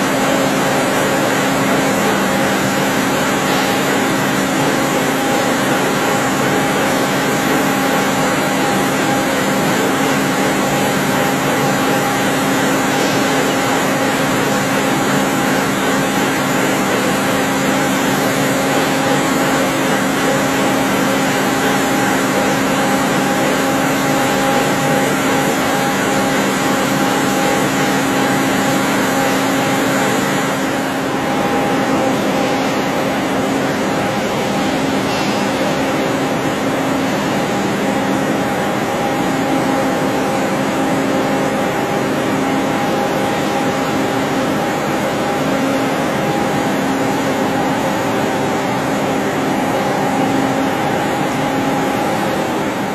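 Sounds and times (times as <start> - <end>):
lathe machine hum: 0.0 - 52.9.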